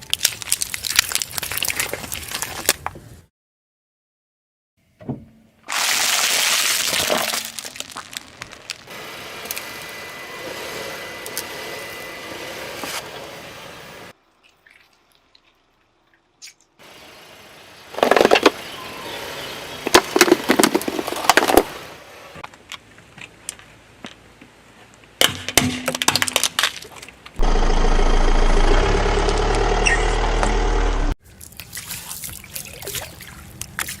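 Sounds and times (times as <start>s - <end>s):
objects crushed under car tyre: 5.7s - 8.9s, 19.9s - 21.8s
low hum: 27.4s - 31.2s.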